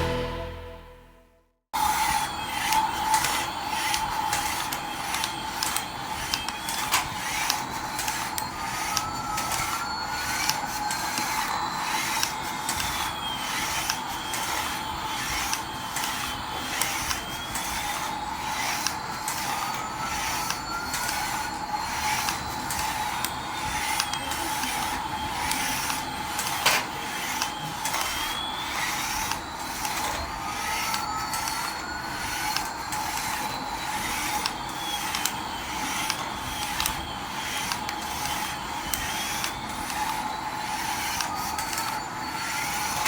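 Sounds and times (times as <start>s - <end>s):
rising and falling electronic tones: 0.0s - 1.2s
toy motor whine: 1.8s - 43.0s
gears clicking rapidly: 2.5s - 43.0s.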